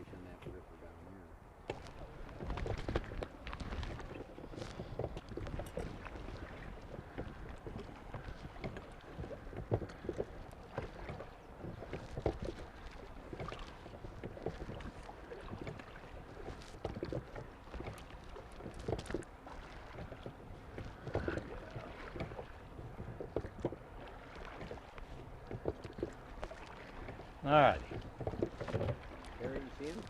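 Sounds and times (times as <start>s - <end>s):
water splashing around a boat: 0.0s - 30.0s
boat knocking: 1.6s - 30.0s.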